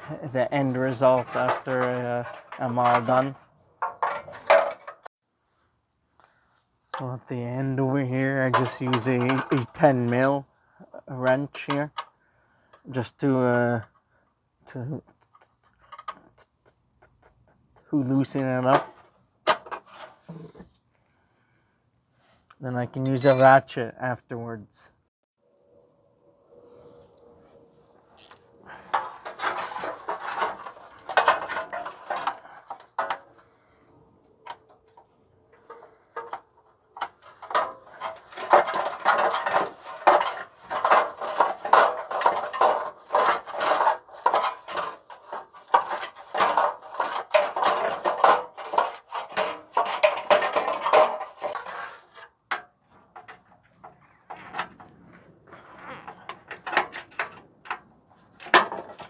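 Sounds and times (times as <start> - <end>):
metal tools clinking: 23.0 - 23.6.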